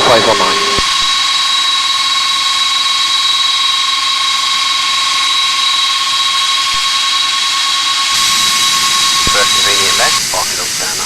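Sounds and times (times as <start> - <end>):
jet engines whining: 0.0 - 11.0.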